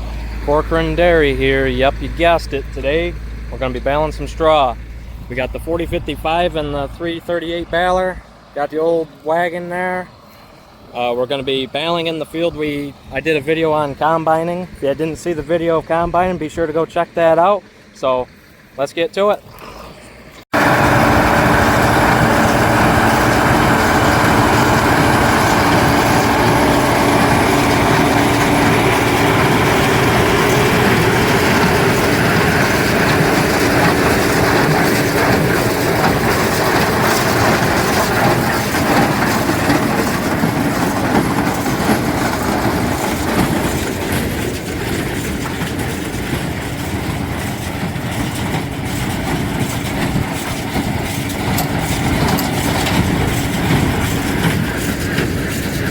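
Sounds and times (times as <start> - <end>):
diesel tractor engine under load: 0.0 - 55.9
baler mechanical clatter: 20.6 - 55.9.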